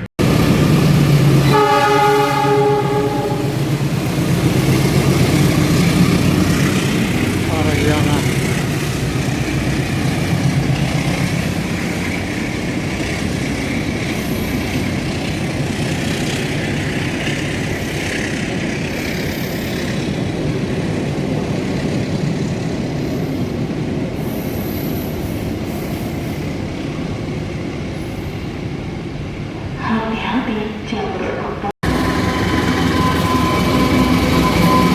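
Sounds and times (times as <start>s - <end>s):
train rumbling past: 0.0s - 34.9s
high-pitched wheel squeals: 31.9s - 34.9s.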